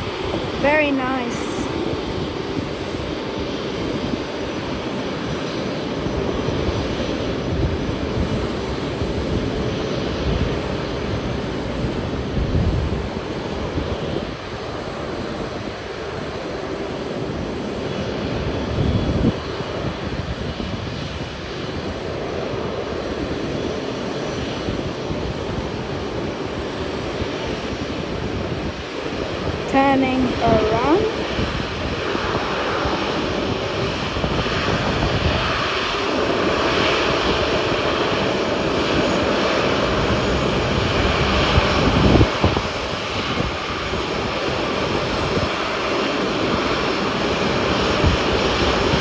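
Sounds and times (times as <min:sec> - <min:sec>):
jet engines running at low power: 0:00.0 - 0:49.0.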